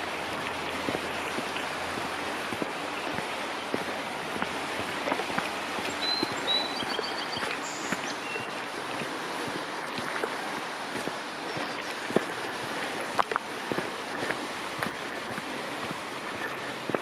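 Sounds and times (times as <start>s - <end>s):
small splashes and clicks: 0.0s - 17.0s
stream rushing: 0.0s - 17.0s
high bird chirps: 5.9s - 8.5s.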